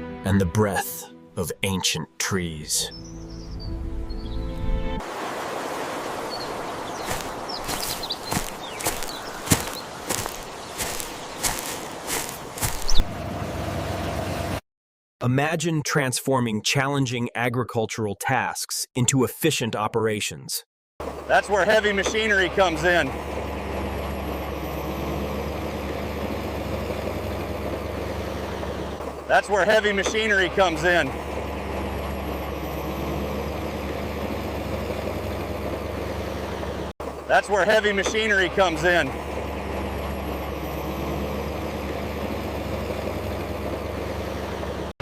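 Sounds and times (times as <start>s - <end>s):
heavy machine engine running: 6.7s - 14.6s, 21.0s - 37.2s, 38.0s - 44.9s.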